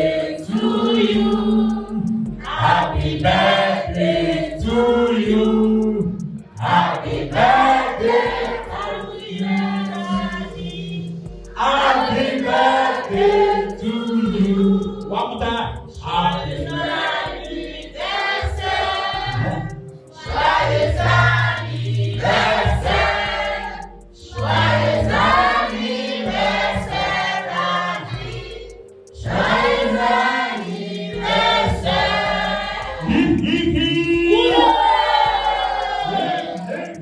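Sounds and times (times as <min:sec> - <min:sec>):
group singing in chorus: 0:00.0 - 0:37.0.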